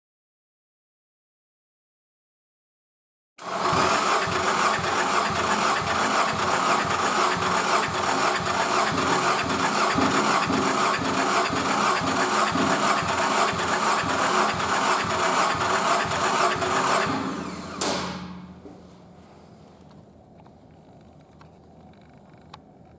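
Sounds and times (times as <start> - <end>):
engine turning over: 3.4 - 18.6.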